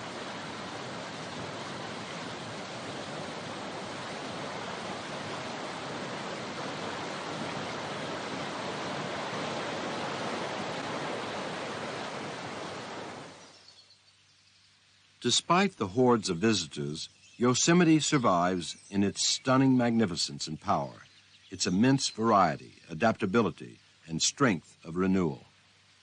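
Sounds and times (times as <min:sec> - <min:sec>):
falling water rushing: 0:00.0 - 0:13.4.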